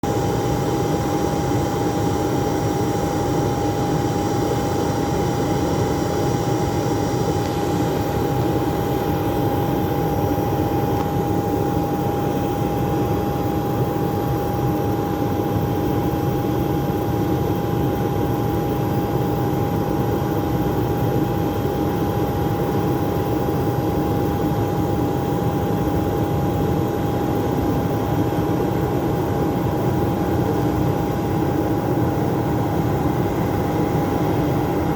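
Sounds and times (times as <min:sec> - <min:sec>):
turboprop engines droning: 0:24.8 - 0:34.9.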